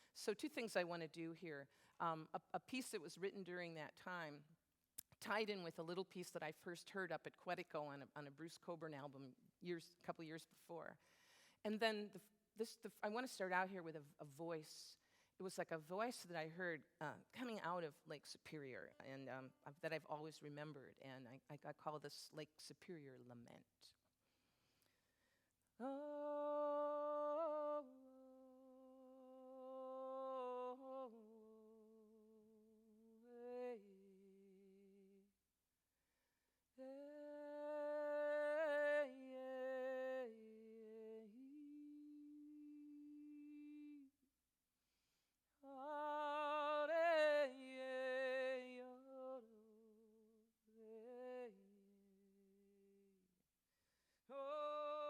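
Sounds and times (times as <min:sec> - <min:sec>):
woman singing a lament: 0:25.8 - 0:32.6, 0:36.8 - 0:44.1, 0:45.7 - 0:50.0, 0:54.3 - 0:55.0.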